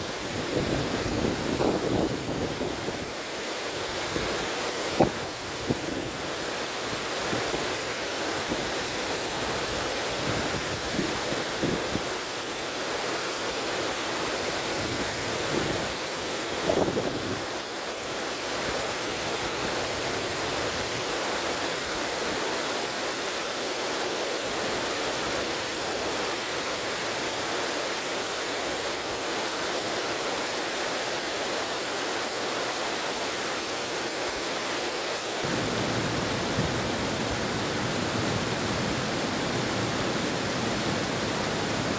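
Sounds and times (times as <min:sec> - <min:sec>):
river flowing: 0:00.0 - 0:41.9
wind buffeting microphone: 0:35.4 - 0:41.9.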